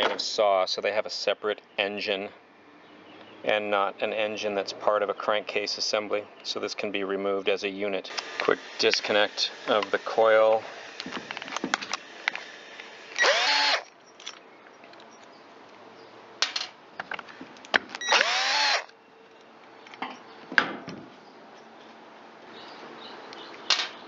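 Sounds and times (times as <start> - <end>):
power drill whining: 8.1 - 13.9, 18.0 - 18.9
clicks and knocks of tools: 14.2 - 15.3, 19.3 - 20.2.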